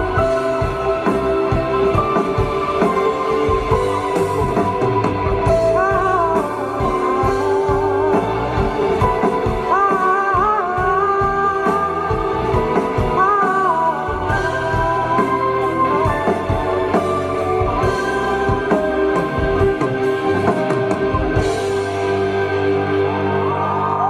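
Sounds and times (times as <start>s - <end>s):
drums: 0.0s - 24.0s
live pop-rock band: 0.0s - 24.0s
man singing: 5.5s - 17.4s.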